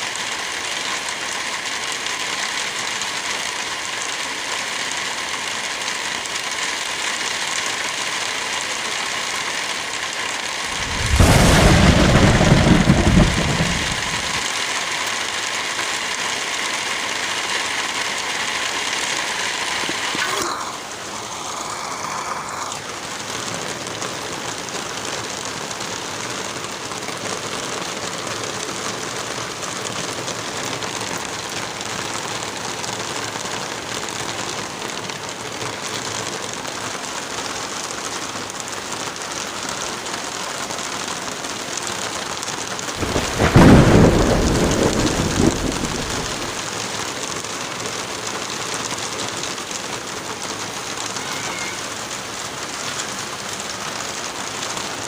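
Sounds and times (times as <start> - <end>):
heavy rain: 0.0 - 55.0
thunderclap rolling into rumble: 10.7 - 14.5, 43.0 - 46.6.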